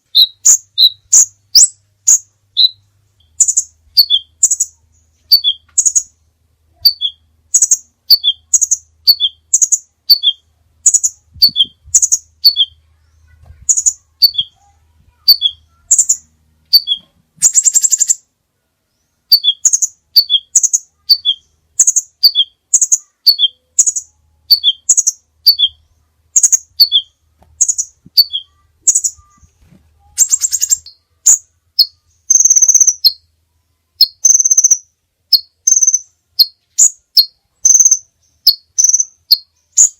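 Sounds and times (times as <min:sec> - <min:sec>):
buzzy bird trill: 0:00.0 - 0:18.3, 0:18.9 - 0:33.3, 0:34.0 - 0:39.9
songbird chirping: 0:00.0 - 0:39.9
bird whistle: 0:00.1 - 0:02.8, 0:03.4 - 0:04.7, 0:05.3 - 0:06.0, 0:06.8 - 0:12.8, 0:16.8 - 0:18.2, 0:19.3 - 0:25.8, 0:26.4 - 0:29.5, 0:30.1 - 0:33.2, 0:34.0 - 0:39.9.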